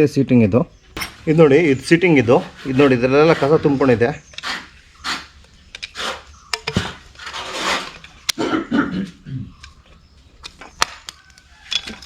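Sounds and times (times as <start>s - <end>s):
metal parts clicking and tapping: 5.4s - 6.9s, 9.6s - 12.0s
person clearing throat: 8.4s - 9.5s.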